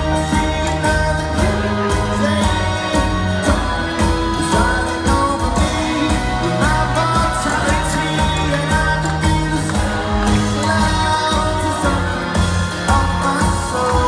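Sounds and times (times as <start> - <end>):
live rock band playing: 0.0 - 14.0
person singing lead vocal: 0.0 - 14.0.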